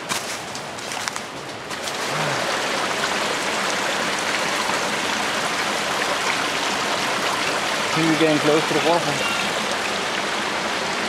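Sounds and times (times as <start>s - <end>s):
stream water rushing: 0.1s - 11.0s.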